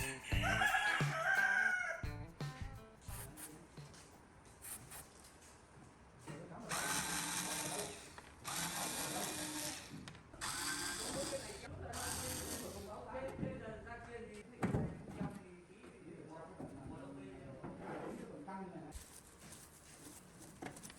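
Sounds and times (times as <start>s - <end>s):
power drill running: 6.7s - 13.0s.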